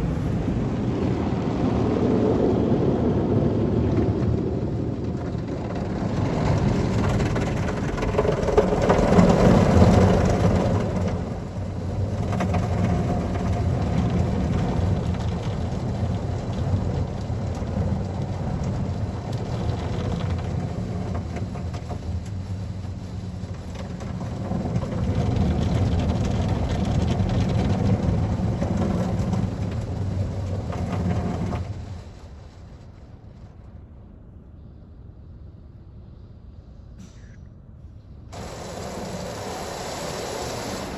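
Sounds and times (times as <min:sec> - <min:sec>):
water spraying onto a car: 0:06.6 - 0:33.0, 0:38.4 - 0:40.9
pump and motor hum: 0:38.3 - 0:40.9.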